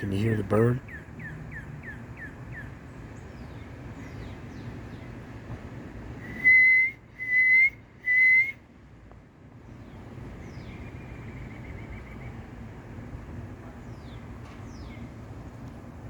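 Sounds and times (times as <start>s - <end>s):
loud whistled notes: 6.2s - 8.6s.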